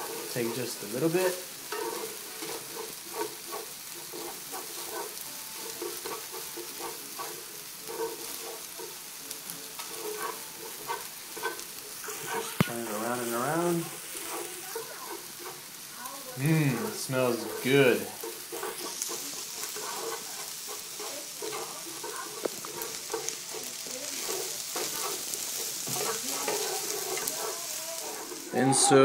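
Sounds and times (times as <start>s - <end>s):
noodles sizzling in skillet: 0.0s - 29.0s
chopsticks clicking against pan: 18.2s - 28.4s.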